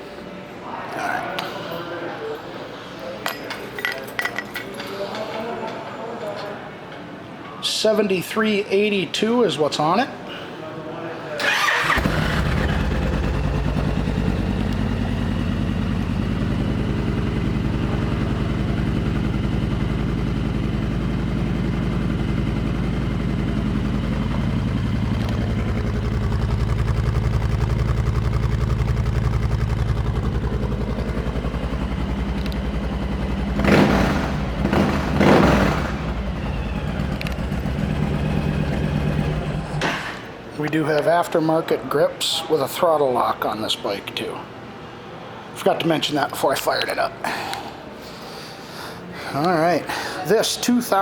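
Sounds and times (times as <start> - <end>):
motorcycle engine idling: 11.9 - 39.8.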